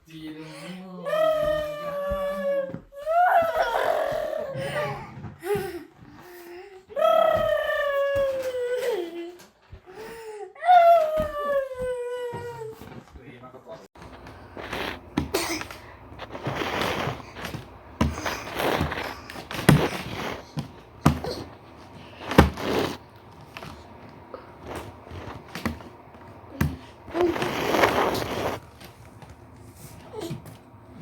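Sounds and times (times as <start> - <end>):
knocks and thumps: 14.0 - 24.0.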